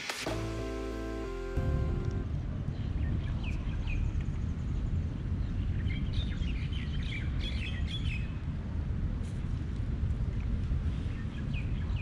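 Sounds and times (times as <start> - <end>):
steady low rumble: 0.2 - 7.4.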